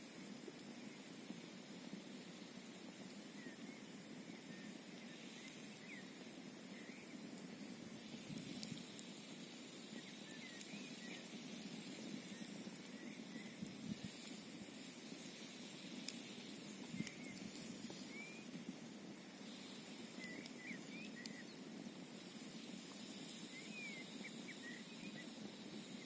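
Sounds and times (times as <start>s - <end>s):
campfire crackling and popping: 0.0s - 26.0s
wind: 0.0s - 26.0s
faint high chirps: 19.4s - 21.6s, 23.3s - 25.4s.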